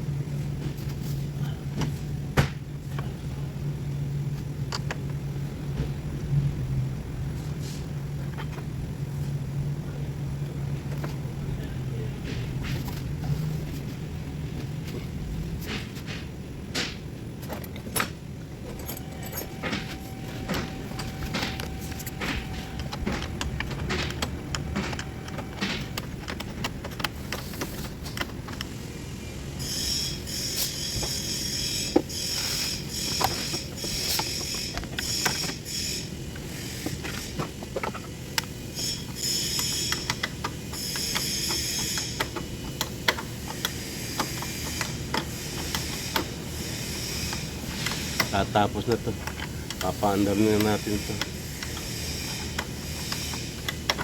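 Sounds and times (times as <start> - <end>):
high shrill buzz: 29.0 - 37.3
ratchet clicking: 29.6 - 54.0.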